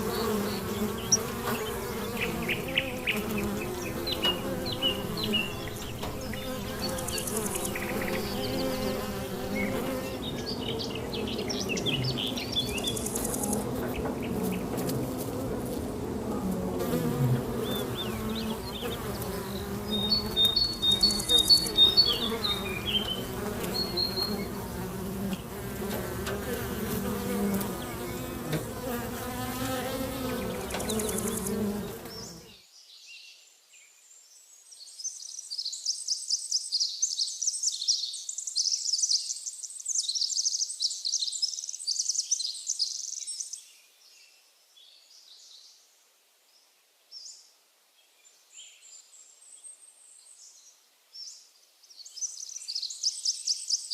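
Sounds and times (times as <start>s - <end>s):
insect buzzing: 0.0s - 32.6s
rapid high-pitched twittering chirps: 1.9s - 13.6s, 18.9s - 24.5s.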